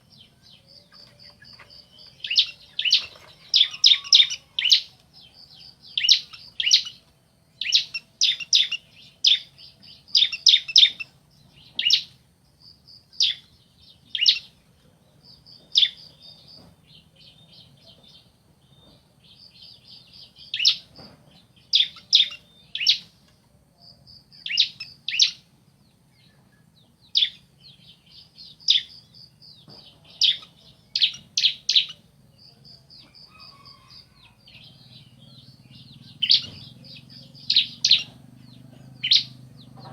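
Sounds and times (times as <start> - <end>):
rapid high ticking bird trills: 0.0 - 7.0, 7.6 - 12.1, 30.1 - 39.9
high down-slurred bird calls: 0.0 - 12.2, 33.0 - 39.9.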